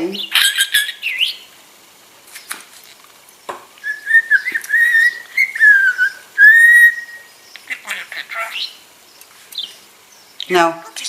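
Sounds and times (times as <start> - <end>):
budgerigar whistling: 0.2 - 1.5, 3.8 - 8.8.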